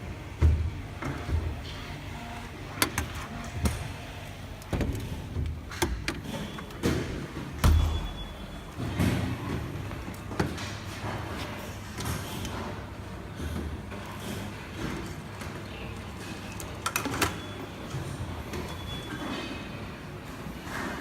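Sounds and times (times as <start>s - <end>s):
knocks clicks and thuds: 4.6s - 8.2s.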